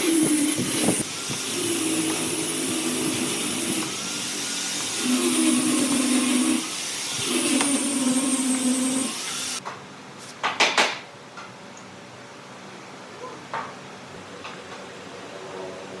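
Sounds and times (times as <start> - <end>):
power tool motor running: 0.0 - 9.6.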